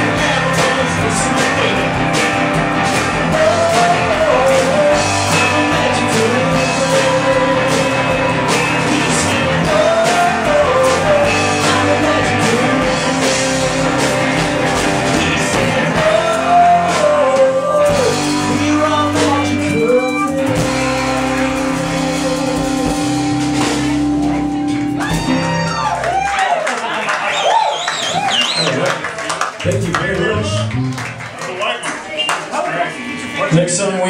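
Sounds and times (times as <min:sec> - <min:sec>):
person singing: 0:00.0 - 0:23.8
electric guitar: 0:00.0 - 0:26.7, 0:29.6 - 0:31.4
live rock band playing: 0:00.0 - 0:34.0.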